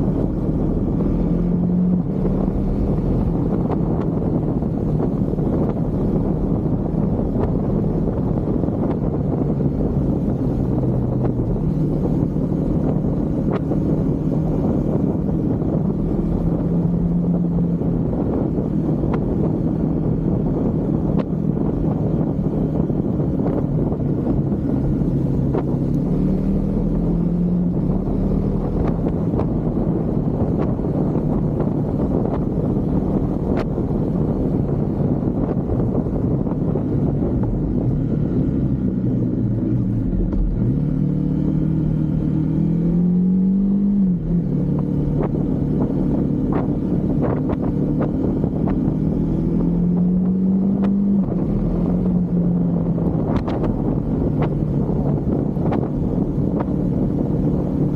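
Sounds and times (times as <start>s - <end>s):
motorcycle engine accelerating: 0.0s - 57.9s
wind buffeting microphone: 0.0s - 57.9s.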